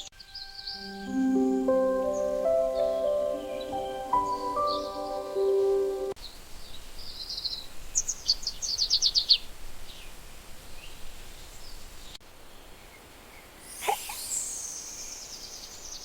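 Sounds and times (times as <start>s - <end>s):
background music: 0.0s - 6.2s
faint outdoor background: 0.0s - 16.0s
small bird chirping: 6.2s - 10.2s, 10.8s - 16.0s.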